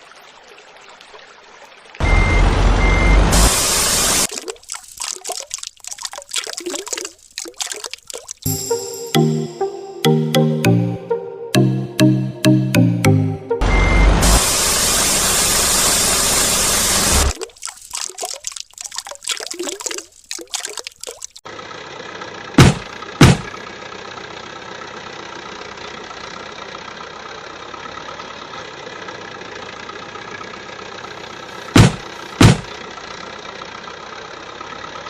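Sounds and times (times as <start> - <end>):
engine idling: 21.5 - 35.0.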